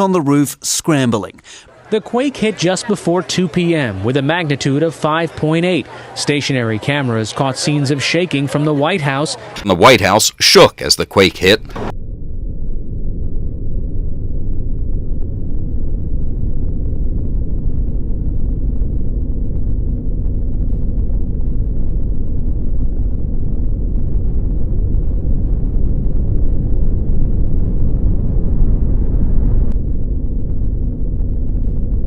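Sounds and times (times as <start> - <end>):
earthquake rumble: 11.6 - 32.0.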